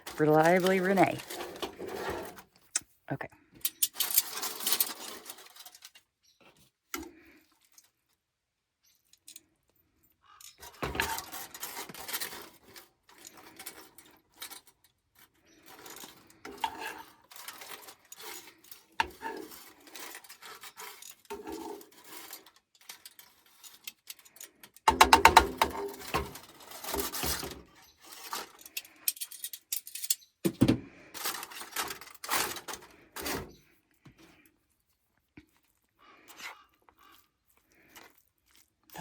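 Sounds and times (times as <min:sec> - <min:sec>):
utensil scraping pots and dishes: 0:00.0 - 0:02.4, 0:15.4 - 0:30.1.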